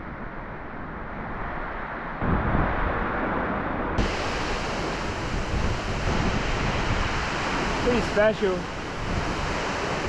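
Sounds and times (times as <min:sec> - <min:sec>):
waterfall rushing: 0:04.0 - 0:10.0.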